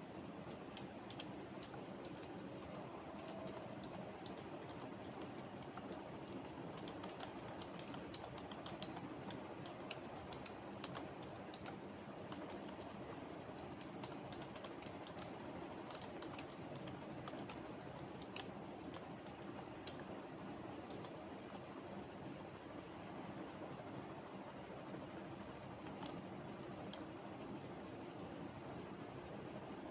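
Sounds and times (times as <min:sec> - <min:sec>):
steady background noise: 0:00.0 - 0:29.9
keyboard typing: 0:00.5 - 0:20.1, 0:20.8 - 0:21.7, 0:25.8 - 0:27.1.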